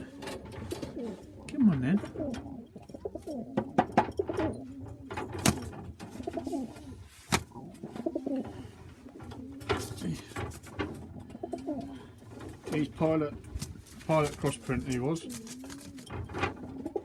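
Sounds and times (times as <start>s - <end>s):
pigeons cooing: 0.0s - 17.0s
sharp clicks and knocks: 3.6s - 6.3s.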